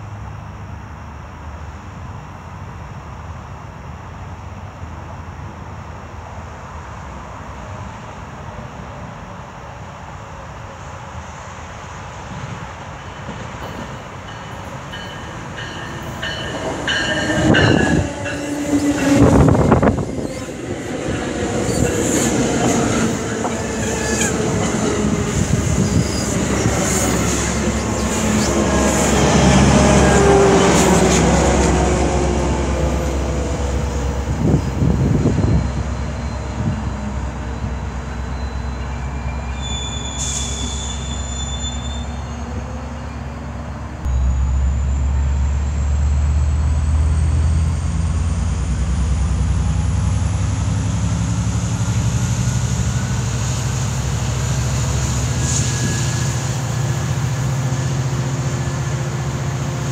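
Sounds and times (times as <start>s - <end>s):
diesel train engine rumble: 0.0s - 59.9s
train clanks: 12.3s - 39.0s
high wheel squeal: 14.3s - 30.8s, 33.7s - 47.8s, 52.8s - 57.5s.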